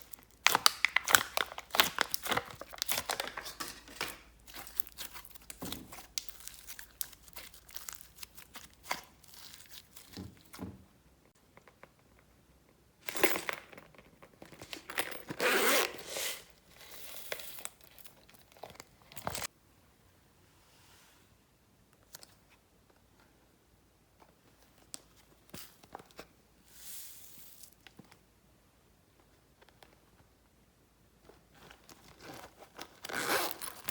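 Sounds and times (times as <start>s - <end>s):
slime squelching and crackling: 0.0s - 3.6s, 4.3s - 10.2s.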